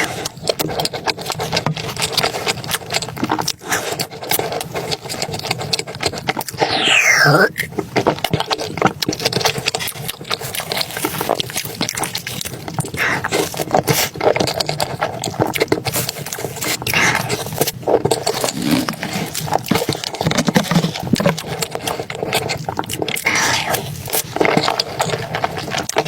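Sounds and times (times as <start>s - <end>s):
wet chewing and slurping: 0.0s - 26.0s
scrape: 3.5s - 7.7s, 12.2s - 14.2s, 15.9s - 21.1s.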